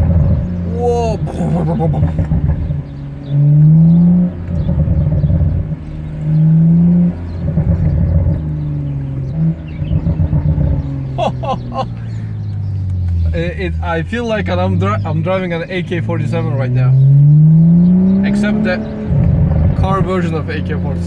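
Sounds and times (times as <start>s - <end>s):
car engine revving: 0.0s - 21.0s
exhaust crackling and popping: 0.0s - 21.0s.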